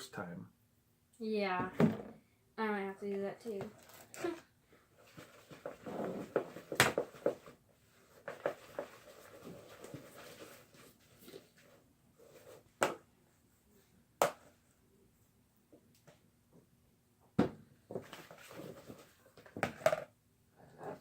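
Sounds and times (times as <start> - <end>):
handling and rustling noise: 3.6 - 12.8, 17.8 - 20.0.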